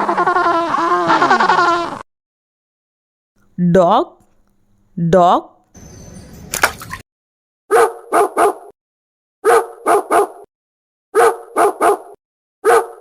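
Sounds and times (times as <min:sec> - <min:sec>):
dog barking: 0:07.7 - 0:08.8, 0:09.4 - 0:10.5, 0:11.1 - 0:13.0.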